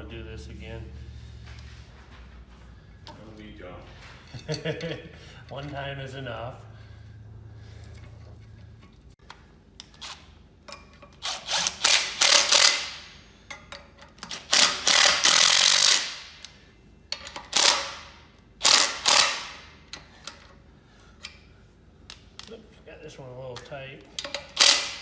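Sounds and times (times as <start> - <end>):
ratchet tightening bolts: 9.8 - 20.5, 23.6 - 25.0.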